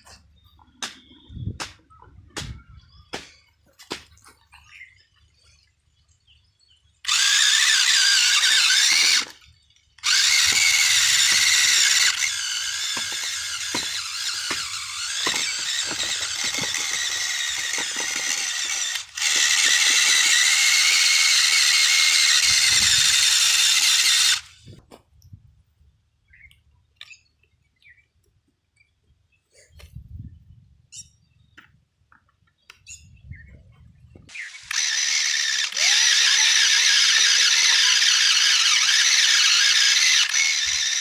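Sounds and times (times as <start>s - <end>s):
toy tractor motor whining: 7.0s - 24.8s, 34.3s - 41.0s.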